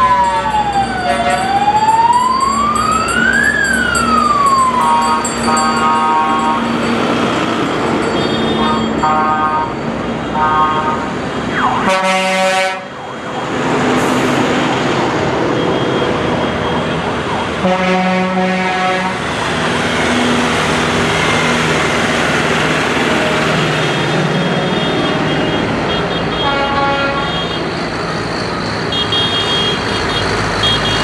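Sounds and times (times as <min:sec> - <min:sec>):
passing tractor engines: 0:00.0 - 0:31.0
tractor horn blasts: 0:11.8 - 0:12.9, 0:17.6 - 0:19.2, 0:24.8 - 0:27.6.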